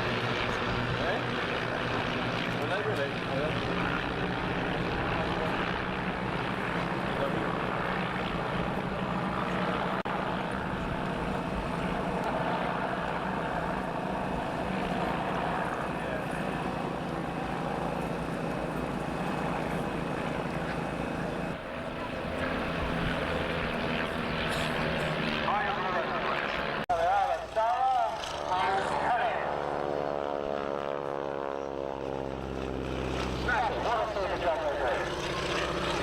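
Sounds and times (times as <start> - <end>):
propeller aircraft engine running: 0.0 - 36.0.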